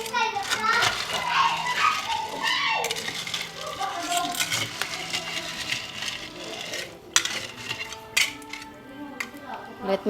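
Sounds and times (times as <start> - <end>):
faint background voices: 0.0 - 10.0.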